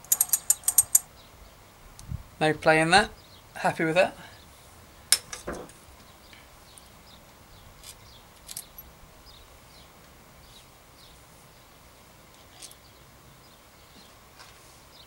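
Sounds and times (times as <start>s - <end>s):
light clicks of small parts: 7.8s - 8.9s.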